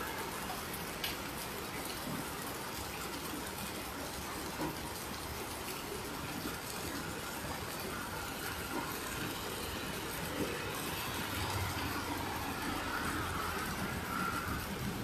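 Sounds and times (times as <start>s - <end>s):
heavy rain falling: 0.0s - 15.0s
runoff water pouring: 0.0s - 15.0s.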